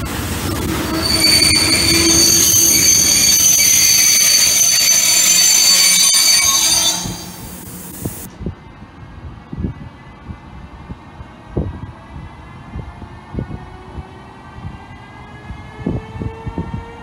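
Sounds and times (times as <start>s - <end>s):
rumble of freight wagons: 0.0s - 16.6s
train wheels squealing: 0.5s - 7.6s.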